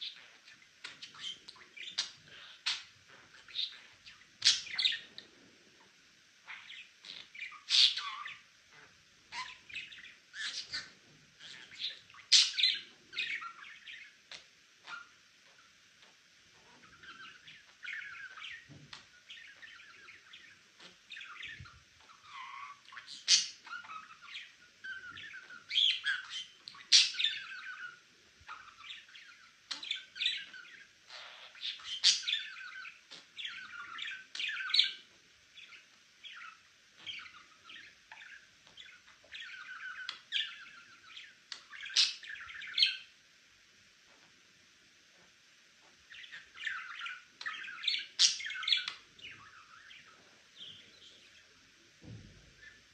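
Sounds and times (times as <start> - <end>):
sharp bird calls: 16.6 - 43.1, 46.1 - 51.5.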